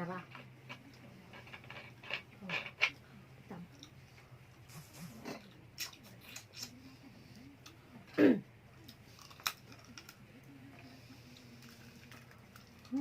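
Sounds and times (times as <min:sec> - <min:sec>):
person chewing: 0:08.8 - 0:10.1.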